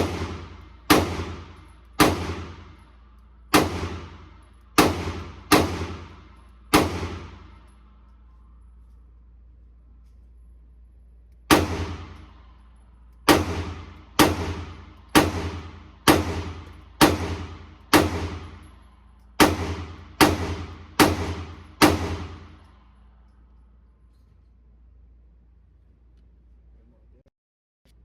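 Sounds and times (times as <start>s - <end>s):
handgun shots echoing: 0.0s - 7.8s, 11.5s - 22.8s.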